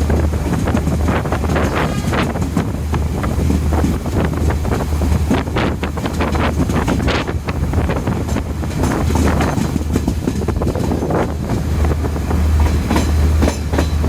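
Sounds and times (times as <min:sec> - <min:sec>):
diesel train engine drone: 0:00.0 - 0:14.0
wheels clattering on rail: 0:00.0 - 0:14.0
wind buffeting microphone: 0:00.0 - 0:14.0.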